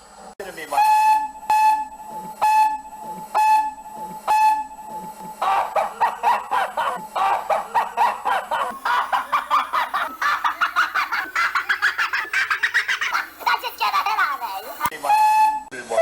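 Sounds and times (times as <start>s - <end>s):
steam train whistle toots: 0.8s - 5.4s, 15.0s - 15.8s
stuttering clucks: 5.4s - 15.0s.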